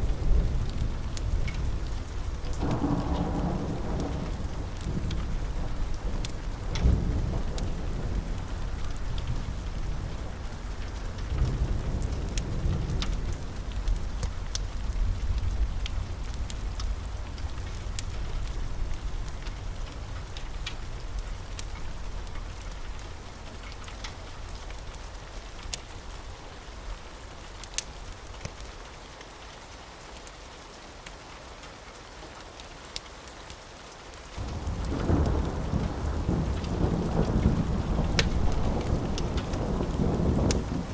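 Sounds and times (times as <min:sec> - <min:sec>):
rolling thunder: 0:00.0 - 0:19.4, 0:34.4 - 0:40.9
steady rain: 0:00.0 - 0:40.9.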